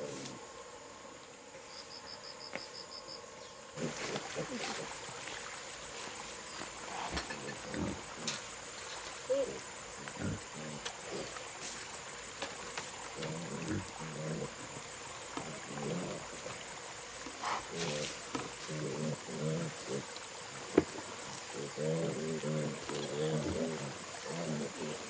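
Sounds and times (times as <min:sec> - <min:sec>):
high insect whine: 0:00.0 - 0:25.0
pigs grunting: 0:03.8 - 0:05.0, 0:06.9 - 0:08.4, 0:09.3 - 0:11.4, 0:13.1 - 0:16.6, 0:17.4 - 0:25.0.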